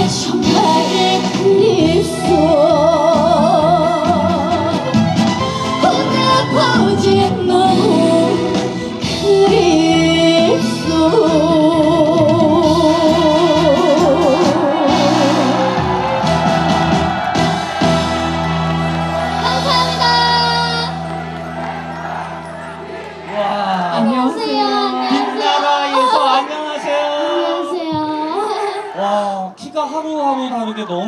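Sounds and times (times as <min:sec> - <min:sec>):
woman singing with vibrato: 0:00.0 - 0:05.0, 0:05.8 - 0:15.8, 0:19.1 - 0:29.6
live band accompaniment: 0:00.0 - 0:24.2.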